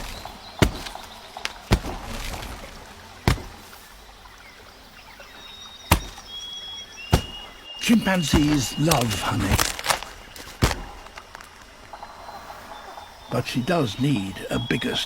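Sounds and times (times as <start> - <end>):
stick knocking: 7.1 - 7.5.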